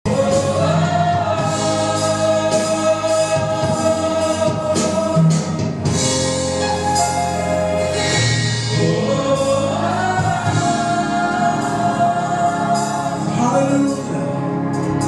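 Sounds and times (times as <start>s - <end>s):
choir singing: 0.1s - 5.9s, 7.8s - 15.0s.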